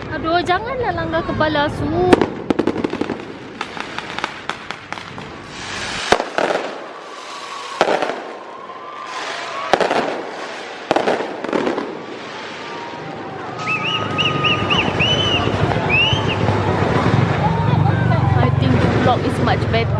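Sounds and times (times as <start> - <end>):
fireworks cracks and bangs: 1.7 - 19.6
hissing crackle: 2.8 - 13.0
faint firework whistles: 5.1 - 16.6.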